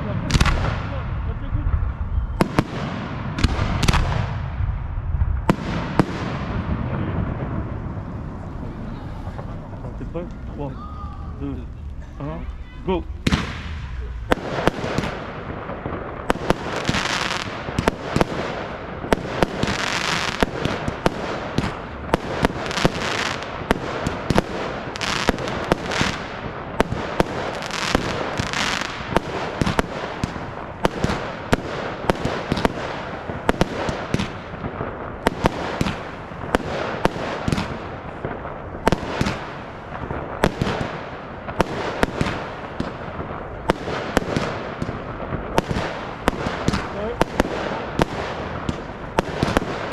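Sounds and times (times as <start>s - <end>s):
fireworks hissing and crackling: 0.0s - 4.7s, 5.3s - 49.9s
fireworks bangs: 0.0s - 49.9s.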